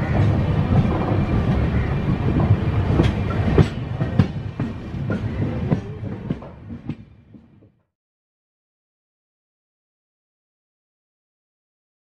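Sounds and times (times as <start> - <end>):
train passing with heavy rumble: 0.0 - 7.8.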